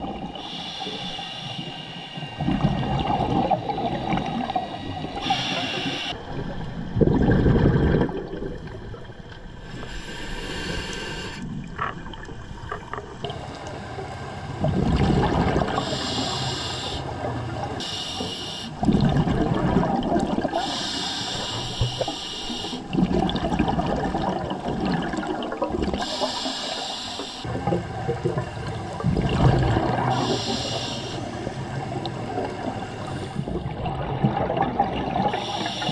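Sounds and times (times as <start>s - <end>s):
hissing regulator inhalations: 0.4s - 2.6s, 4.1s - 6.2s, 9.7s - 11.5s, 15.7s - 17.2s, 17.8s - 18.8s, 20.6s - 23.0s, 26.0s - 27.5s, 30.0s - 33.5s, 35.3s - 35.9s
bubbling exhalations: 2.4s - 9.0s, 14.6s - 16.4s, 18.8s - 20.9s, 22.7s - 26.5s, 27.4s - 35.9s.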